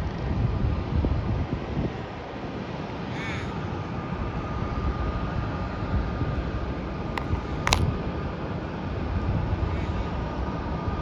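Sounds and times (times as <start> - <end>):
sharp click: 7.2 - 7.9.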